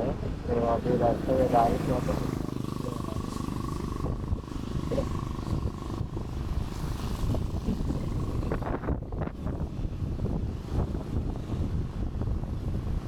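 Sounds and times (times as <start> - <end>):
scooter engine running: 0.0 - 9.9
road noise: 0.0 - 13.0
wind buffeting microphone: 0.0 - 13.0.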